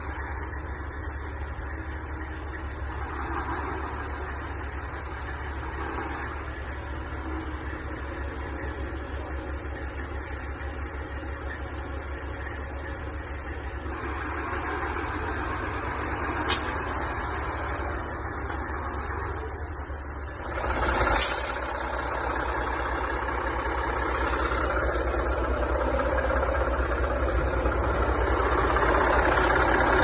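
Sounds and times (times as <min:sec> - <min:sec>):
diesel truck engine idling: 0:00.0 - 0:30.0
brief hiss: 0:16.4 - 0:16.8, 0:21.1 - 0:22.7
sharp click: 0:16.4 - 0:16.8.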